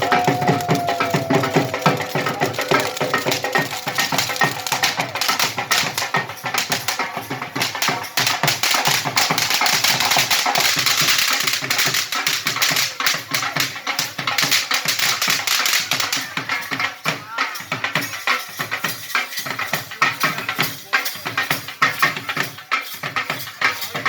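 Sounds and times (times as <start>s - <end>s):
fireworks crackling: 0.0s - 16.3s
music: 0.0s - 24.0s.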